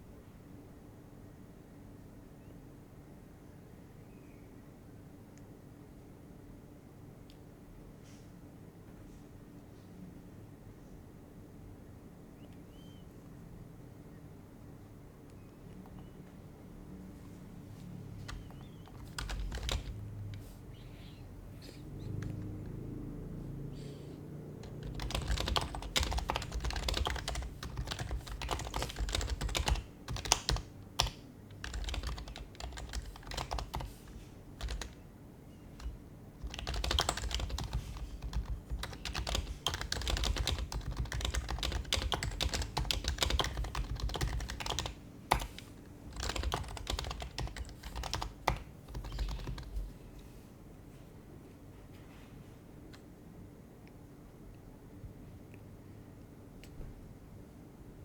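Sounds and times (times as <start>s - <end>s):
soft muted keyboard typing: 17.2s - 21.2s, 21.9s - 22.9s, 24.5s - 50.0s.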